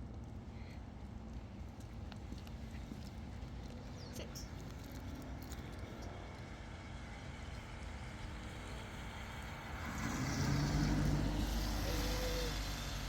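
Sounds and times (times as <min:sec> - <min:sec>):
vehicle passing by: 0:08.1 - 0:13.0.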